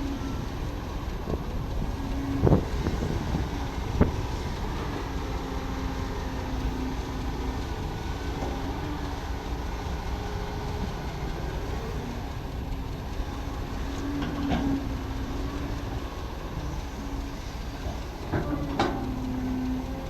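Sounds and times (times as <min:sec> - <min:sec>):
excavator diesel engine running: 0:00.0 - 0:20.0
metallic clanks: 0:17.8 - 0:19.3.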